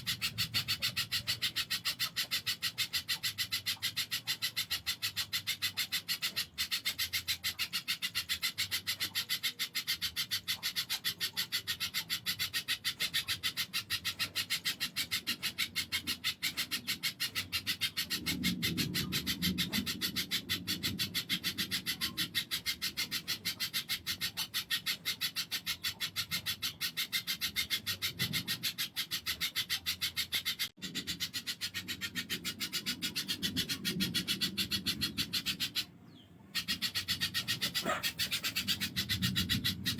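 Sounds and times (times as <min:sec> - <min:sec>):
bird chattering high notes: 0:36.5 - 0:39.9.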